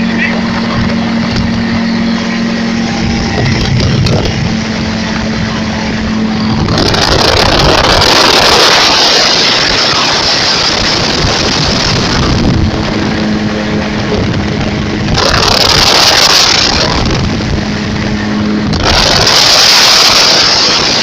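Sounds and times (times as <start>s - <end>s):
loud rushing noise: 0.0s - 21.0s
vehicle engine humming: 0.0s - 21.0s.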